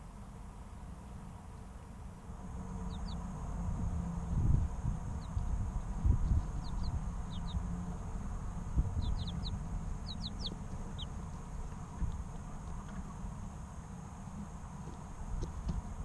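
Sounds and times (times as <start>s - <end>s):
steady low rumble: 0.0s - 16.0s
chicks peeping: 2.6s - 13.4s.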